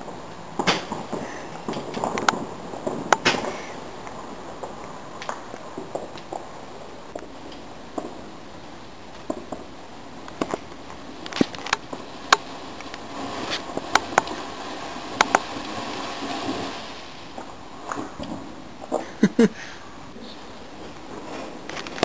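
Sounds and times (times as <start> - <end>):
fireworks cracking and popping: 0.0 - 19.6, 20.7 - 22.0
hissing rush: 9.7 - 20.6.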